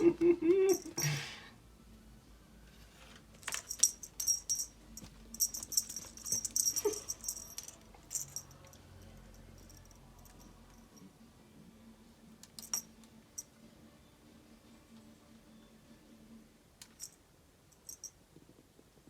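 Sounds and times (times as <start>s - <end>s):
cat toy jingling and rattling: 3.4s - 11.0s.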